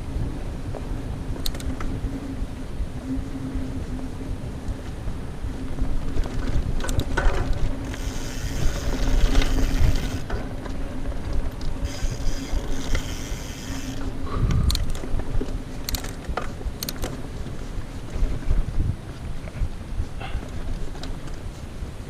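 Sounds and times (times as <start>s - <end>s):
tyres rumbling on trail: 0.0s - 22.0s
wind: 0.0s - 22.0s
bike hub ratchet buzzing: 7.8s - 10.3s, 11.8s - 14.8s.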